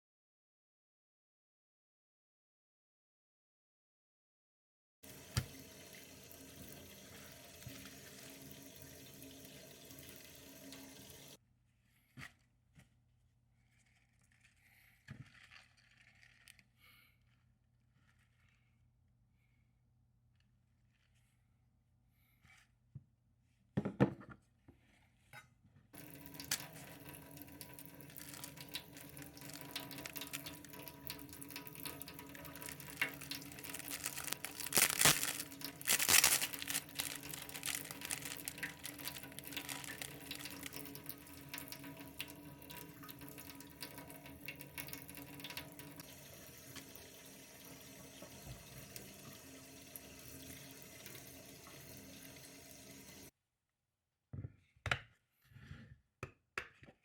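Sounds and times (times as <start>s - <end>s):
water running from tap into sink: 5.0s - 11.4s, 26.0s - 53.3s.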